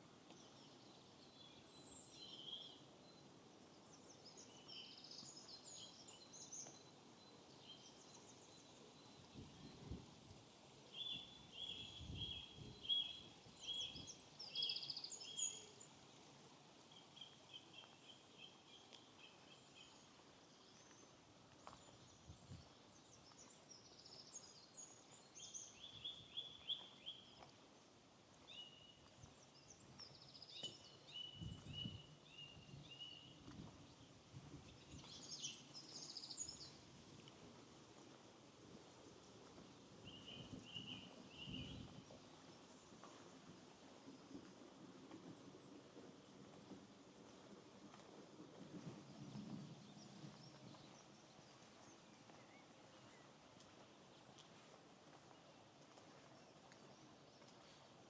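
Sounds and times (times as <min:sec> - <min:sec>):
songbirds chirping: 0:00.1 - 0:10.1, 0:10.8 - 0:37.3, 0:49.0 - 0:58.0.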